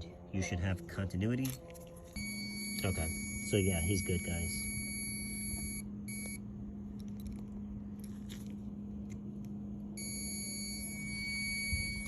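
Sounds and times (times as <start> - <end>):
steady low hum: 0.0 - 12.0
multimeter continuity beeper tone: 2.2 - 6.4, 10.0 - 12.0.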